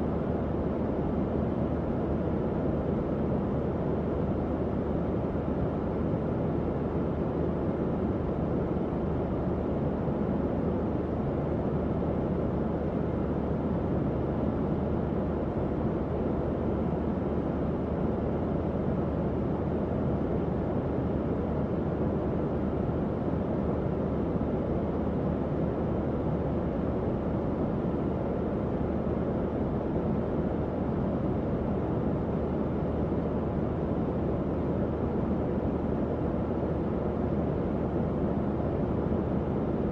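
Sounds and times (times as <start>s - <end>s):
faint low fan hum: 0.0s - 39.9s.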